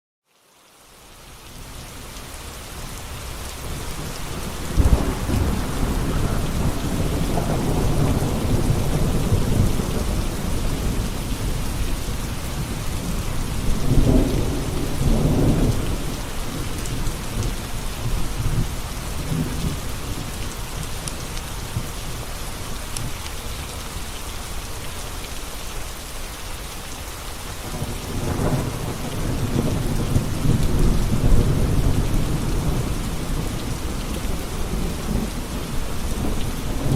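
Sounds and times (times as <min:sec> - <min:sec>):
steady rain: 0:00.2 - 0:36.9
rolling thunder: 0:03.6 - 0:20.4, 0:27.7 - 0:36.9.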